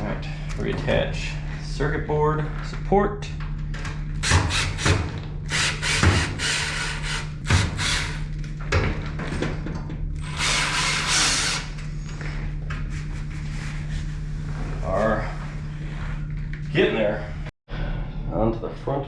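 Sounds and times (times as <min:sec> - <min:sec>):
power driver running: 0:03.3 - 0:09.2, 0:09.8 - 0:12.2.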